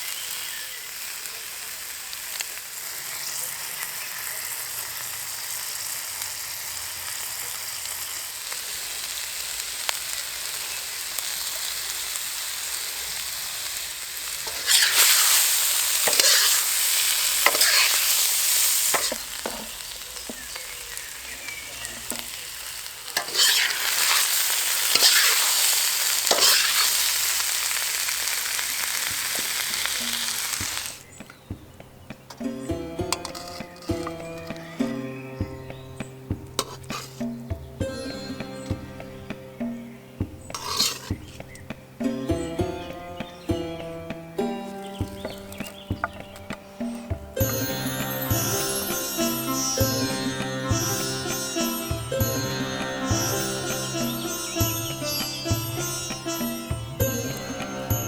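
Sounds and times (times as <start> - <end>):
food deep-frying in hot oil: 0.0 - 31.5.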